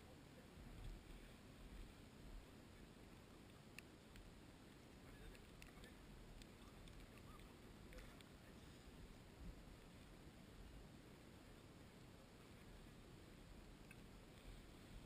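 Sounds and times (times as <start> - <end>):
faint low rumble: 0.0 - 15.0
faint clicks: 2.8 - 8.8, 13.7 - 14.6.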